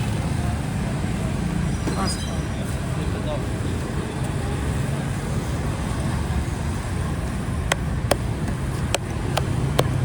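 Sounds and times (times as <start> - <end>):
road traffic rumble: 0.0 - 10.0
sharp regular taps: 7.6 - 10.0.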